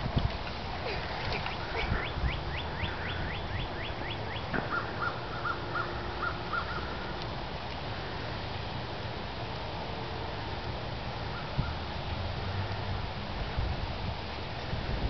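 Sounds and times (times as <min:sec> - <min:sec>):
bird singing: 0:01.4 - 0:07.0.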